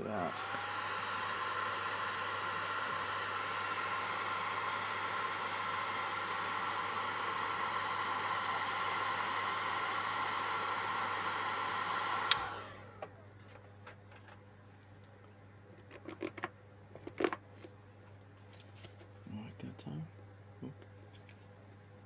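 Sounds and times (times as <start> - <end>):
heat gun blowing: 0.0 - 12.9
heat gun switch click: 12.2 - 12.6.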